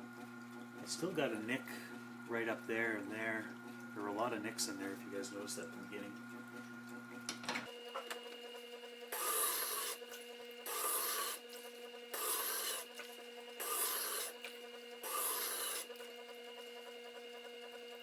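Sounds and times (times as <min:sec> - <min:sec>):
grinder motor humming: 0:07.7 - 0:18.0
blade rasping on grinding stone: 0:09.1 - 0:16.1.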